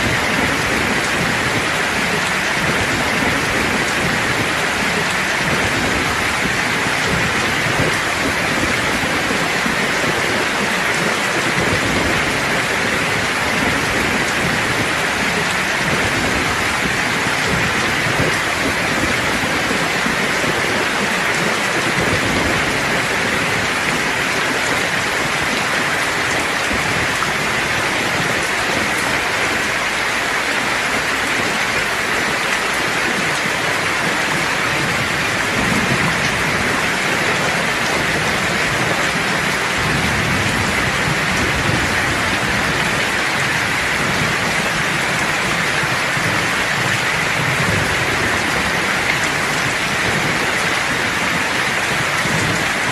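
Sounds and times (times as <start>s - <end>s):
heavy rain hissing: 0.0s - 52.9s
thunder rumbles: 0.0s - 52.9s.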